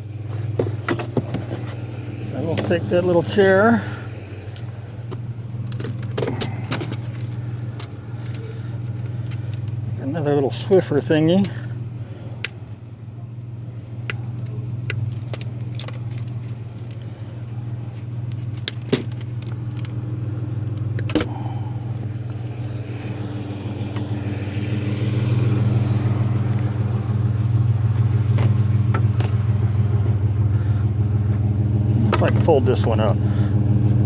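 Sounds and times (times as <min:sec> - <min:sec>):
vehicle engine idling: 0:00.0 - 0:34.0.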